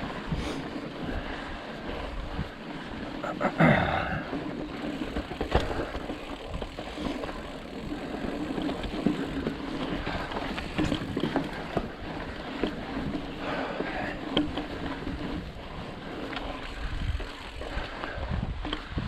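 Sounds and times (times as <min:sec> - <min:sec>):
wind on microphone: 0:00.0 - 0:03.0, 0:16.5 - 0:19.0
bike tyres rumbling over rock: 0:00.0 - 0:19.0
bike knocks and rattles: 0:03.2 - 0:15.6.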